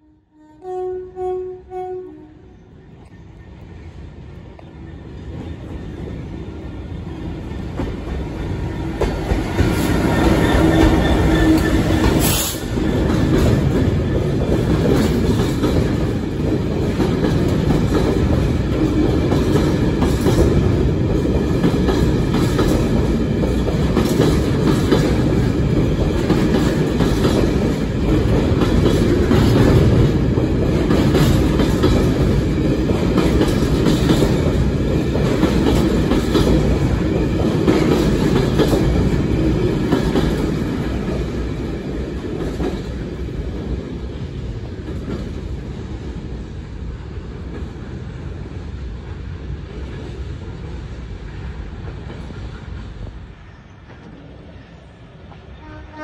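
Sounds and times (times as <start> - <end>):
diesel locomotive engine: 0.0 - 56.0.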